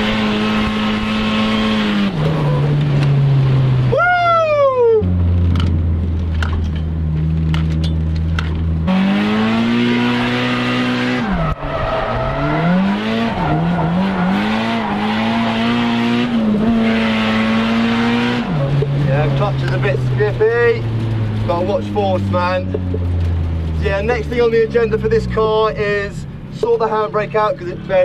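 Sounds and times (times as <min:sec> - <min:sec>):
car engine revving: 0:00.0 - 0:04.1, 0:05.0 - 0:28.0
man speaking: 0:19.0 - 0:20.9, 0:21.5 - 0:22.9, 0:23.8 - 0:28.0.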